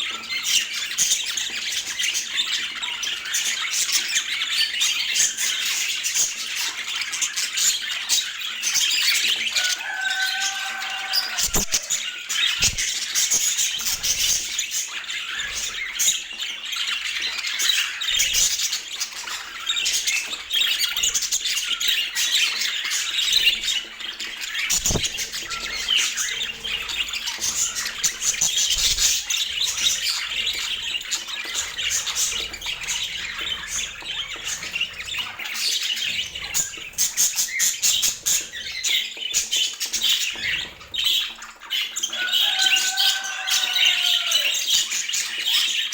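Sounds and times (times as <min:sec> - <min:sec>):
budgerigars chattering: 0:00.2 - 0:45.9.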